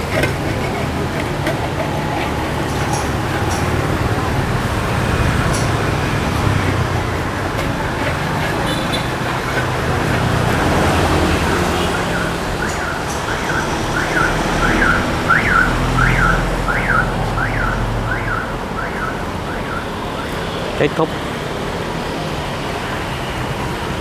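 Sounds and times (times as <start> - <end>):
low engine hum: 0.0 - 20.7
street traffic: 0.0 - 24.0
electronic alarm rising and falling: 11.3 - 20.6.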